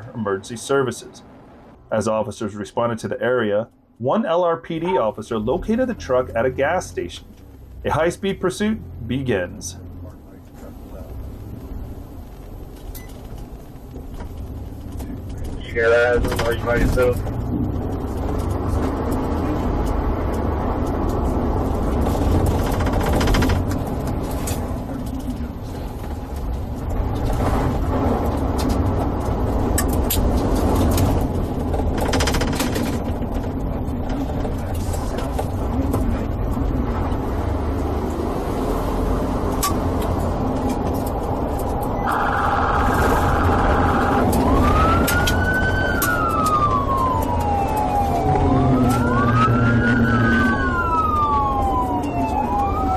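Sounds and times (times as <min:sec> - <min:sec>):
car engine and road rumble: 0:00.0 - 0:52.9
police siren wailing: 0:41.3 - 0:52.9.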